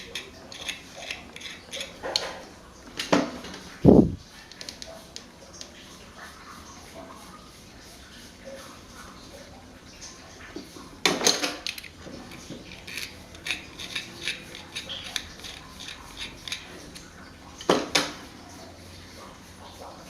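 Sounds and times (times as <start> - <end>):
metal parts clattering: 11.2 - 17.1.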